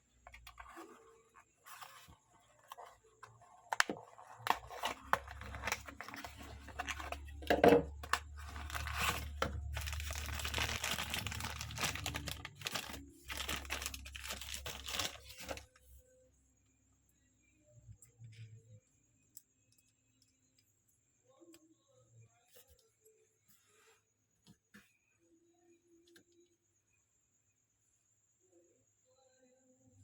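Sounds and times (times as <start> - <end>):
packaging tearing and crinkling: 4.0 - 7.2, 8.0 - 15.7.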